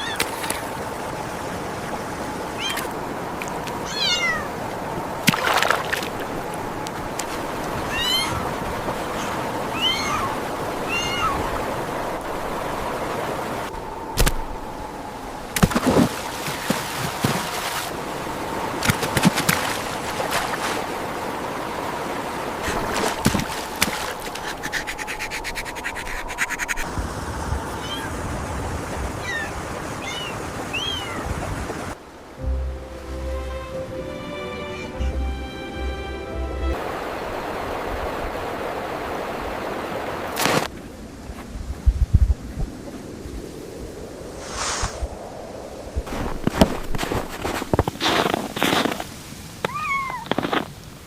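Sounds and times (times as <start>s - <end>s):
water splash: 0.0s - 14.8s, 15.4s - 27.0s, 36.7s - 40.7s
water rushing: 0.0s - 51.0s.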